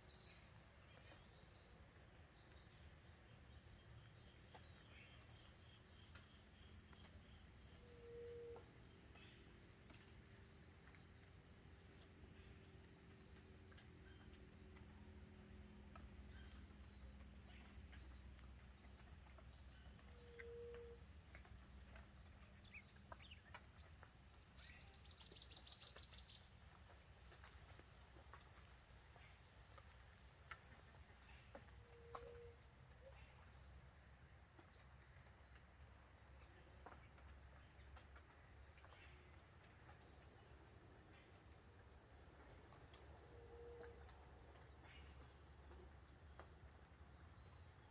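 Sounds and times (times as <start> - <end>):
pulsing insect chirp: 3.6 - 34.0.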